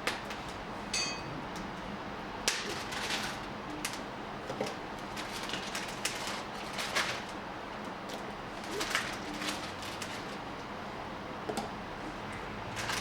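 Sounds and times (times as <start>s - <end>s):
metal clinking: 1.0s - 1.3s.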